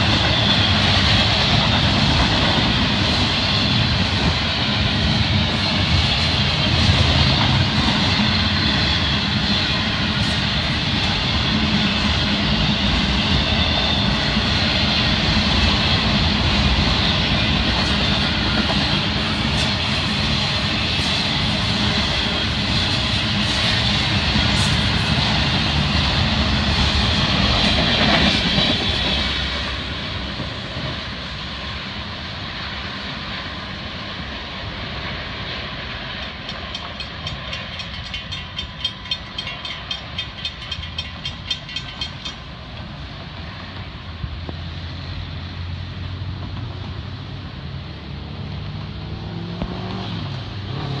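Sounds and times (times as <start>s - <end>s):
freight cars rolling on rails: 0.0s - 51.0s
crossing bell ringing: 36.4s - 42.9s.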